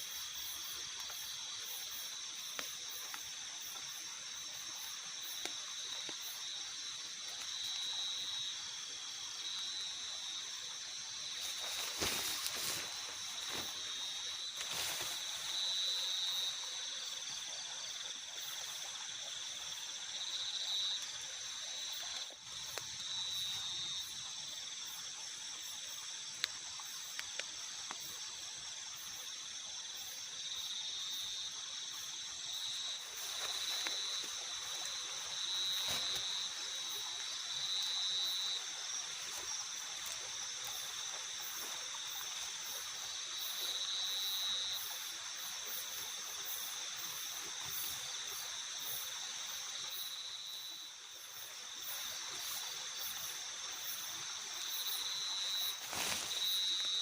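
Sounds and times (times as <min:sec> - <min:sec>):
night insects chorus: 0:00.0 - 0:57.0
faint ticks: 0:22.1 - 0:22.9, 0:26.3 - 0:28.1.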